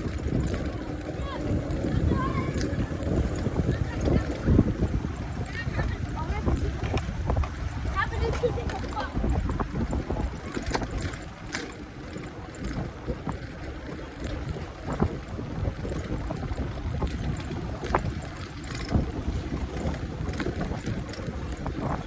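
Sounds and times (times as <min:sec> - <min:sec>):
city ambience: 0:00.0 - 0:15.3
wind rumbling on microphone: 0:00.0 - 0:22.0.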